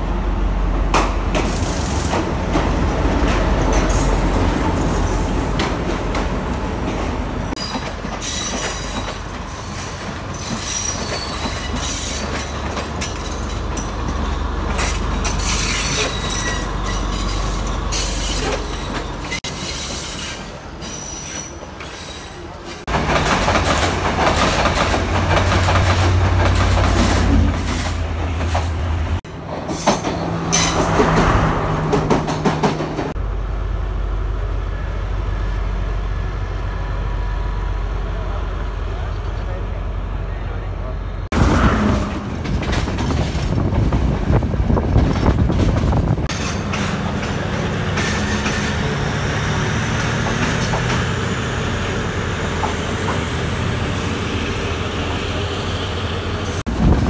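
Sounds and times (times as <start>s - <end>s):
locomotive engine rumble: 0.0s - 57.0s
wheels clattering and squealing on rails: 0.9s - 33.2s, 40.3s - 57.0s
passing locomotive engine drone: 22.9s - 45.0s, 45.8s - 57.0s.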